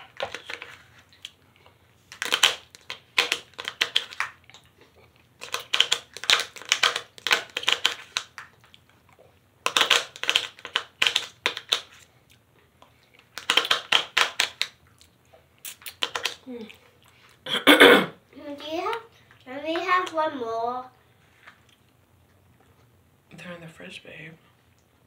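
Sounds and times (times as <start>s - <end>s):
crunchy chewing: 0.0s - 17.4s.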